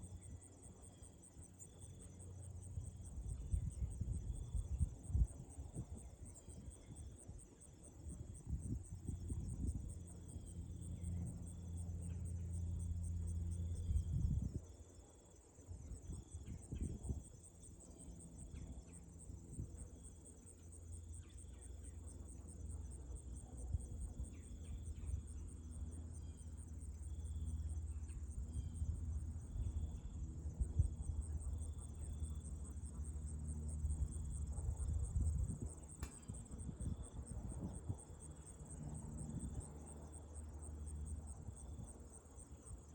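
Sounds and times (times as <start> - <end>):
crickets trilling: 0.0 - 42.9
wind rumbling on microphone: 13.8 - 14.7, 16.0 - 17.4, 34.0 - 38.2.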